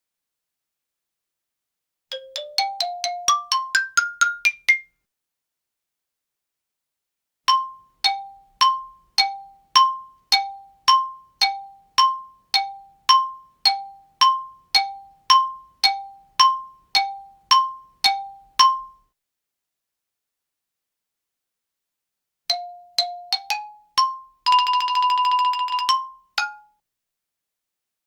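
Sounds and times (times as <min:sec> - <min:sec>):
xylophone two alternating notes: 0:02.1 - 0:04.9, 0:07.5 - 0:19.0, 0:22.5 - 0:26.7.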